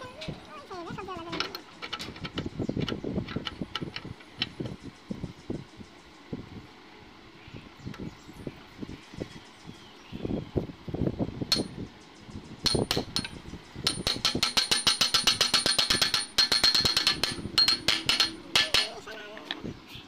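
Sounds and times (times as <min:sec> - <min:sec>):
rapid metal tapping: 0:12.6 - 0:19.1.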